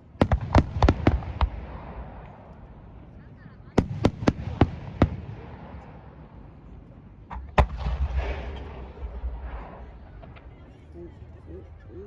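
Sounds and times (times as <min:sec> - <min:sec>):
fireworks bangs: 0:00.0 - 0:03.0, 0:03.8 - 0:06.4, 0:07.3 - 0:10.9
low rumble: 0:00.0 - 0:12.0.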